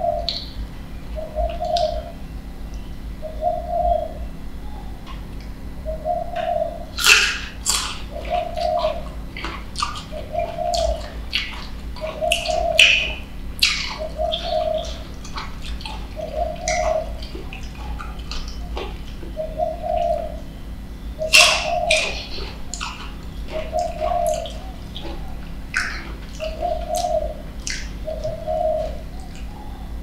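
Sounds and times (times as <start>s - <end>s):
crunchy chewing of fruit: 6.4s - 30.0s.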